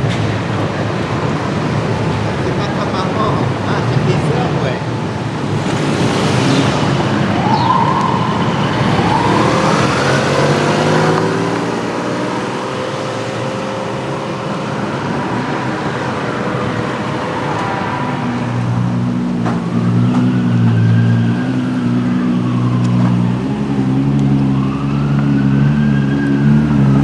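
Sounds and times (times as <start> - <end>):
vehicles driving by: 0.0 - 27.0
rising and falling pitched sound: 5.5 - 14.0.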